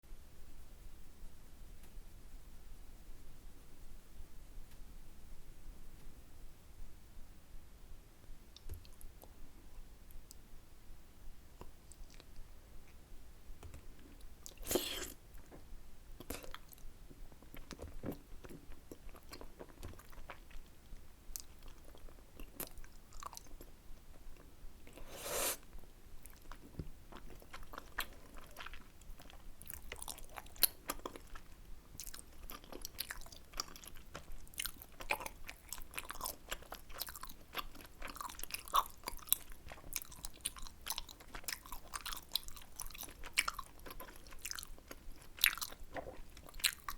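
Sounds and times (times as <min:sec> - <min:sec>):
close-miked chewing: 0:11.6 - 0:13.0, 0:13.6 - 0:15.6, 0:16.2 - 0:46.9.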